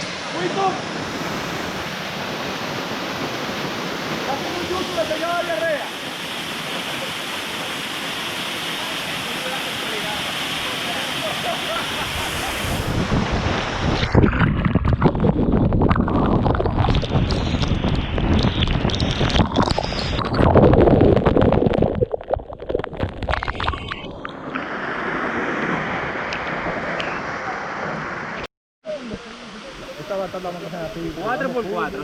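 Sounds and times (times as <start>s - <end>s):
waterfall rushing: 0.0s - 14.9s, 29.0s - 32.0s
wind buffeting microphone: 12.0s - 22.0s.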